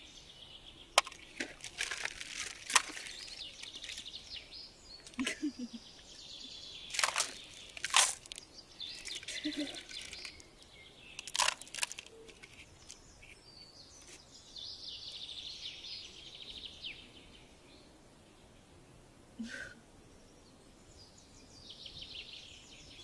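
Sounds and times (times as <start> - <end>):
birds chirping in trills: 0.0 - 19.1
sharp crunching clicks: 1.0 - 4.2, 6.9 - 13.4.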